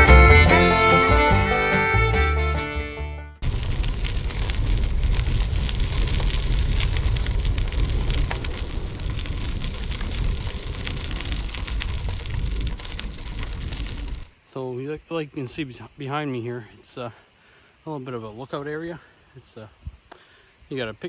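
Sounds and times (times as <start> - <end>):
wind rumbling on microphone: 3.4 - 14.3
dense steady crackle: 3.4 - 21.0.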